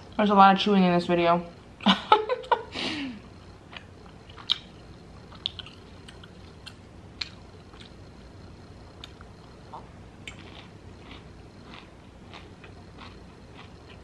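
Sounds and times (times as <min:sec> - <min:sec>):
person chewing crunchy salad: 0:03.6 - 0:08.0, 0:09.0 - 0:14.0.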